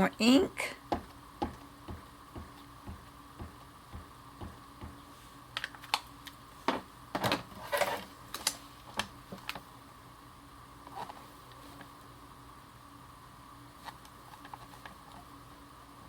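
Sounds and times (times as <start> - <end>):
ink pad tapping on stamp: 0.9 - 5.0.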